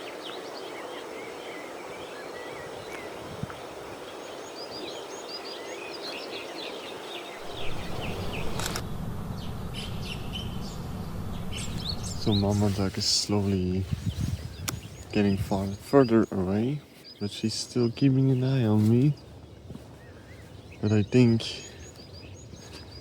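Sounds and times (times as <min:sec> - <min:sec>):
small birds chirping: 0:00.0 - 0:23.0
low rumble: 0:07.4 - 0:13.0
outdoor hush: 0:07.4 - 0:14.0
sharp click: 0:07.5 - 0:12.3.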